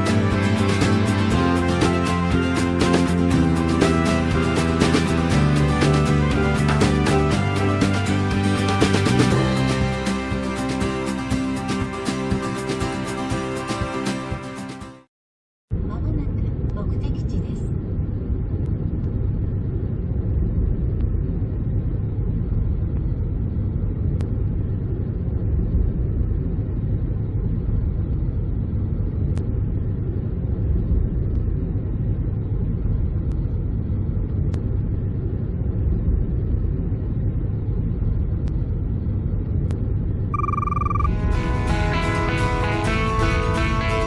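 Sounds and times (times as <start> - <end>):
brief electronic tone: 40.3 - 41.2.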